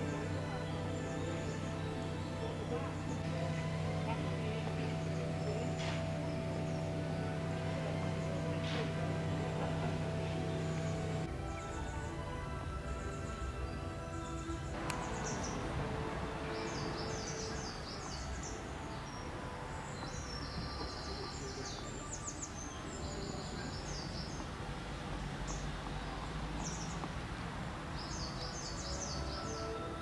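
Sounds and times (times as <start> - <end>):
low outdoor rumble: 0.0 - 21.6
small birds chirping: 0.0 - 30.0.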